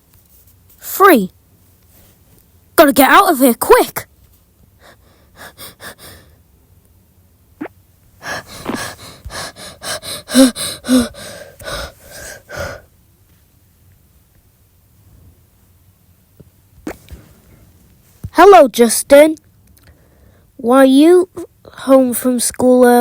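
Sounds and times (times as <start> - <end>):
person breathing hard in gasps: 4.8 - 6.4, 8.2 - 12.9.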